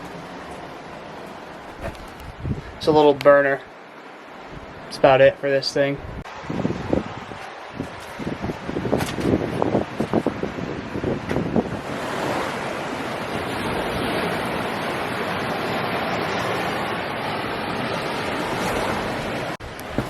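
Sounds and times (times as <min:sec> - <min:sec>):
ocean surf washing: 0:00.0 - 0:20.0
wind on microphone: 0:01.6 - 0:03.1, 0:06.0 - 0:20.0.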